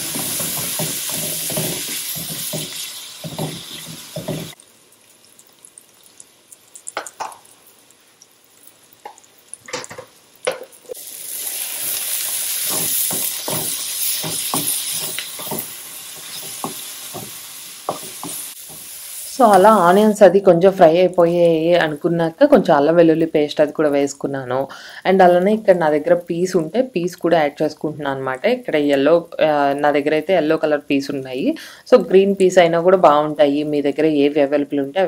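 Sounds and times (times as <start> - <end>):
wooden spatula knocking pan: 0.0 - 4.6, 12.6 - 18.9
onions sizzling in oil: 0.0 - 35.0.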